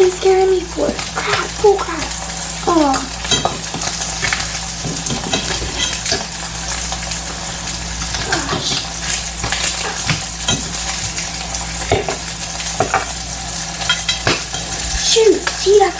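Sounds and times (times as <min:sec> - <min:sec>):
food sizzling in skillet: 0:00.0 - 0:15.9
utensil scraping pan: 0:03.2 - 0:13.2.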